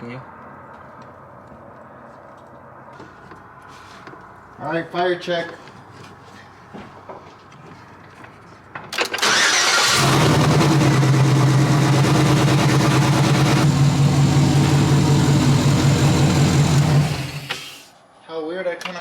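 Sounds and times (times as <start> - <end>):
engine cranking on starter: 9.0 - 17.9
loud engine idling: 9.2 - 17.6.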